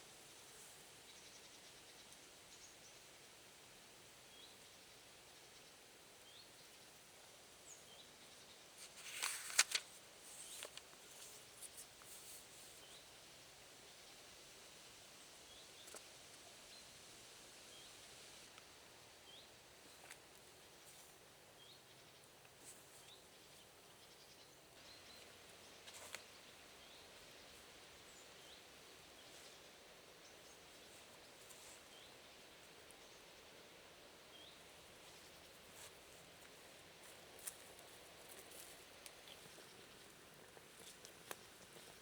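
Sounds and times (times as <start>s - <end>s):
soft hiss: 0.0s - 42.0s
faint ticks: 35.2s - 42.0s.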